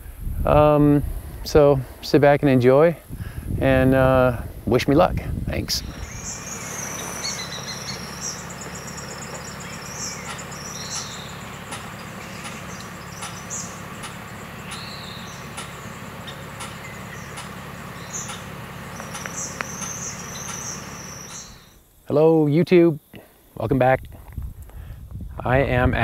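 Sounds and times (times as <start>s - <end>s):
steady low hum: 0.0s - 26.0s
songbirds chirping: 0.6s - 24.0s
rapid high bird trill: 5.8s - 21.8s.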